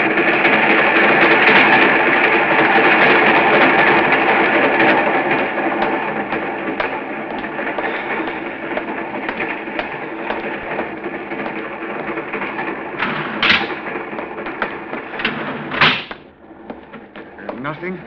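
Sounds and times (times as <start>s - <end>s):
train rumbling with wheel clicks: 0.0s - 18.0s.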